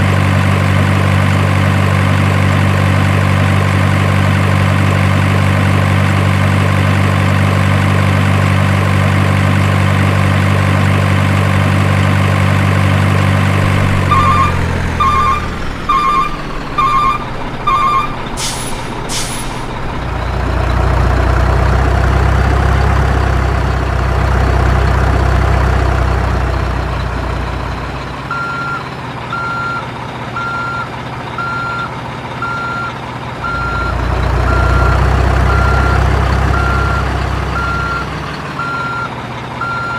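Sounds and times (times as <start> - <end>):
truck engine idling: 0.0 - 39.9
reversing alarm beeping: 13.6 - 19.6, 28.3 - 29.8, 30.4 - 39.9.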